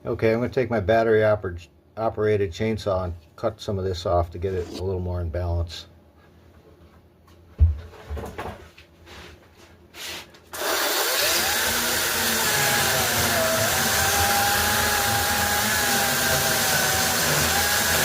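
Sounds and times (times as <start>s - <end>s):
battery chainsaw cutting wood: 10.6s - 18.0s.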